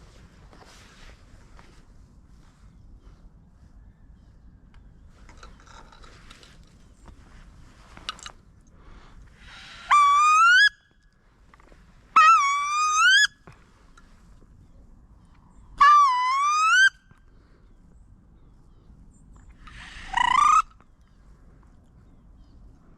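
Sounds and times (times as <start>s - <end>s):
wood duck calls squealing: 9.5s - 10.8s, 12.2s - 13.4s, 15.8s - 17.0s, 19.7s - 20.8s.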